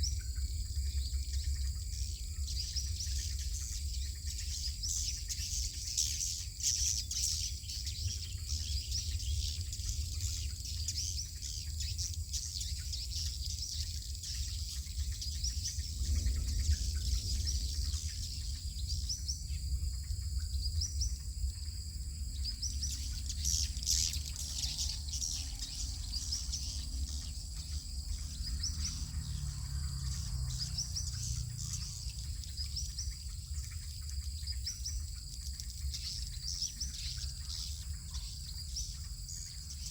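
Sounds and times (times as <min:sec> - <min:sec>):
high insect drone: 0:00.0 - 0:39.9
low rumble: 0:14.2 - 0:23.8.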